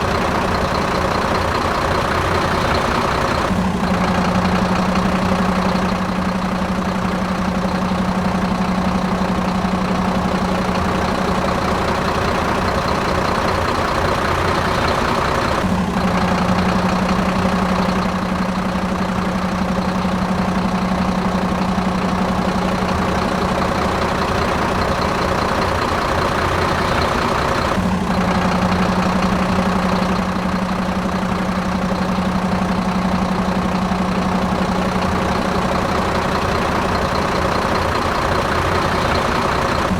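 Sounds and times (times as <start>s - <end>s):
engine idling hum: 0.0s - 39.9s.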